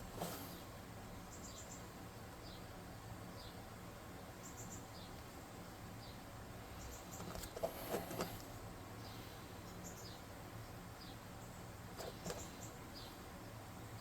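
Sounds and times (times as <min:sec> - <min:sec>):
faint high-pitched chirps: 0:04.4 - 0:05.2.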